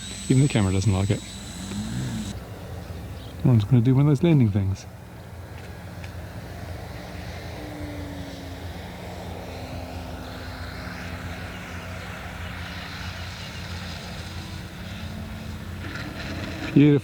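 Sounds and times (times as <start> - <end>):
model airplane motor droning: 0.0 - 2.4, 6.9 - 16.7.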